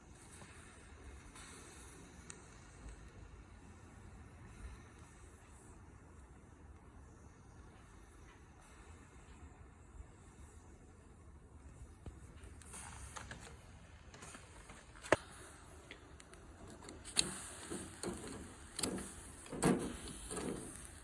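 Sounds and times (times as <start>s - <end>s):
wood fire: 0.0s - 21.0s
clicks and scraping knocks: 16.6s - 21.0s.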